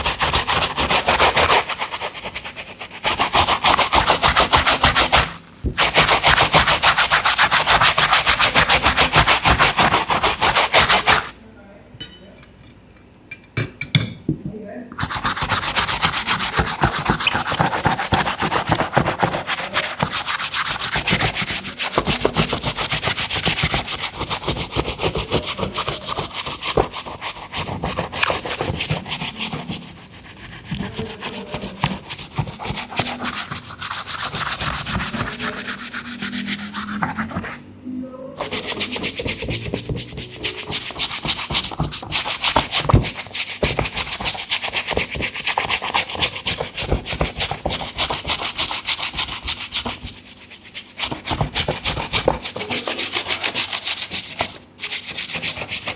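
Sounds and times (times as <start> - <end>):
brush scrubbing a sneaker: 0.0 - 11.4, 15.0 - 37.6, 38.4 - 55.9.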